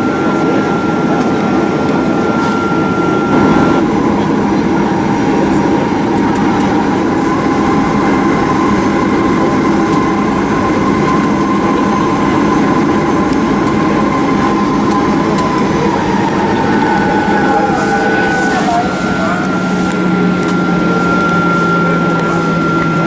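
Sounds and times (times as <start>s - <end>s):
jet engines heard from cabin: 0.0s - 23.0s.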